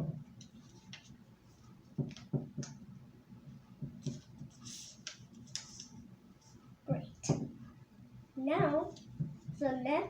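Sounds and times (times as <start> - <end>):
paper rustling and crinkling: 4.0 - 6.0.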